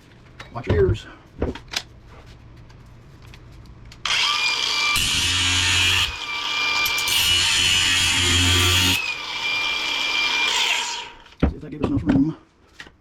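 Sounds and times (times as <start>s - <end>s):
power tool whining: 4.0s - 11.4s.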